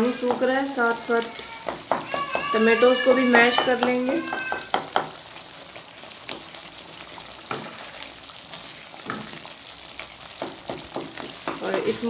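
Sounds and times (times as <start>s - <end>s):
gravy sizzling and bubbling: 0.0s - 12.0s
spatula scraping: 7.5s - 8.2s.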